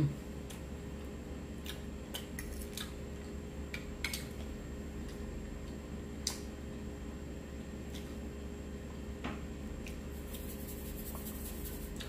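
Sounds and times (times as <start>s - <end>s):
low steady hum: 0.0s - 12.0s
chewing food: 0.4s - 6.5s.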